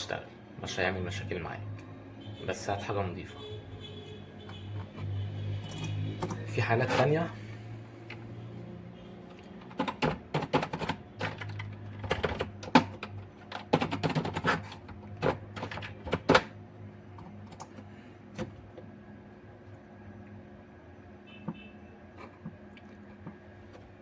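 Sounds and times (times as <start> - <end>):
hard objects clicking and tapping: 9.4 - 16.6.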